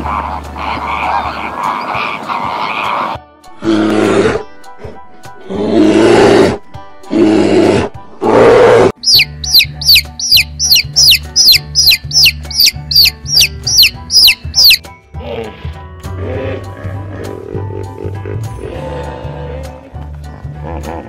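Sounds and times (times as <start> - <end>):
chick peeping: 9.0 - 14.8.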